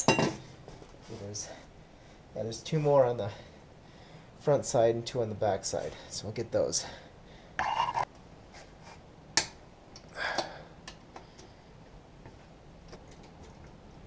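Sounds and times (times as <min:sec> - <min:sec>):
tool scraping: 0:07.6 - 0:09.0.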